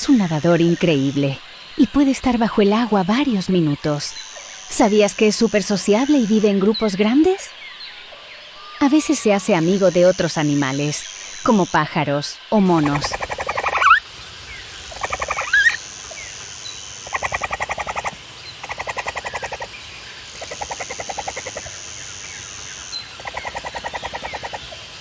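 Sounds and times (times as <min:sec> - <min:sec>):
high-pitched hum: 0:08.8 - 0:25.0
capybara clicking chatter: 0:12.7 - 0:25.0.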